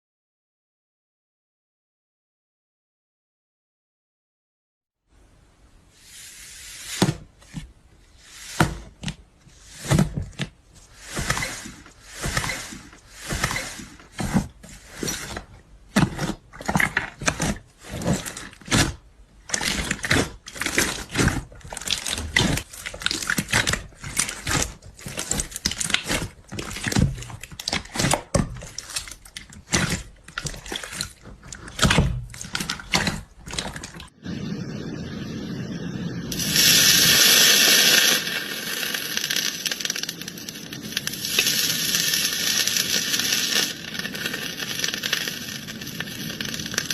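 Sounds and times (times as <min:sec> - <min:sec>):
hands squishing slime: 0:15.9 - 0:34.1.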